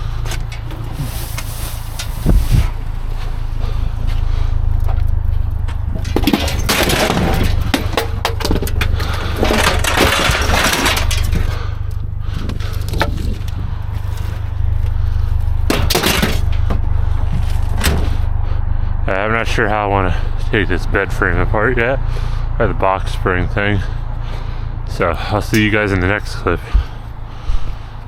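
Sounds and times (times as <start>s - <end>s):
steady low rumble: 0.0s - 28.0s
debris scraping and clattering: 0.1s - 18.3s.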